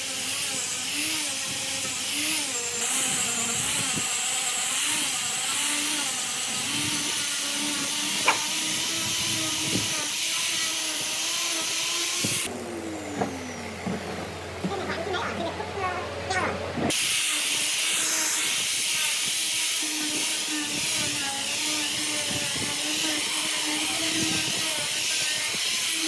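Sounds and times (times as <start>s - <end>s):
hiss of wood cutting: 0.0s - 13.8s, 16.9s - 26.0s
power tool motor: 0.0s - 14.6s, 16.8s - 26.0s.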